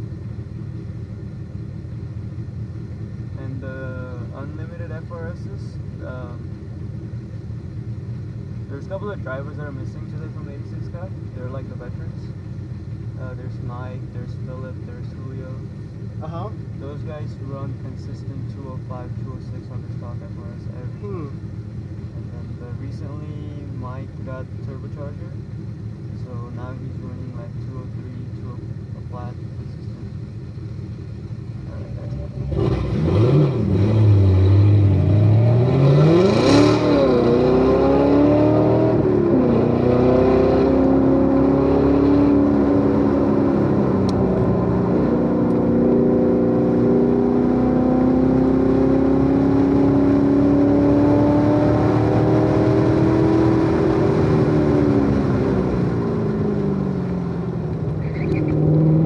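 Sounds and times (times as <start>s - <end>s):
car engine accelerating hard: 31.5s - 59.0s.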